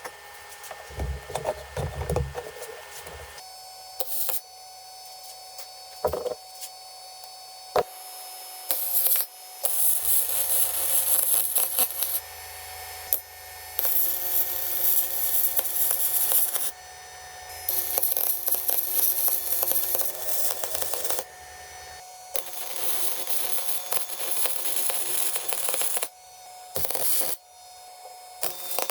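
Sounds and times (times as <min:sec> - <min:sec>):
band saw motor hum: 0:00.5 - 0:03.4
sharp knocks: 0:00.9 - 0:03.3.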